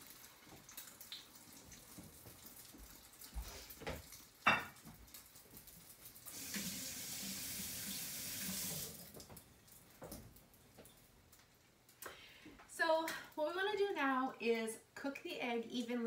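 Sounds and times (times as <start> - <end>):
bread frying in oil: 0.0 - 12.0.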